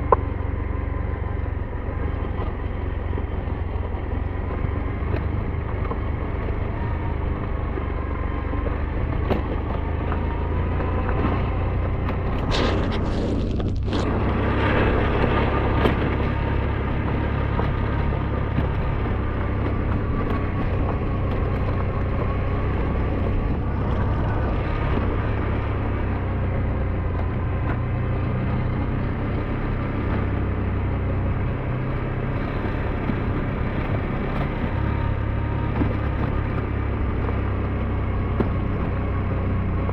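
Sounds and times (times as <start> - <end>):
motorbike engine running: 0.0 - 39.9
wind and road noise: 0.0 - 39.9
brief whoosh: 12.3 - 16.2.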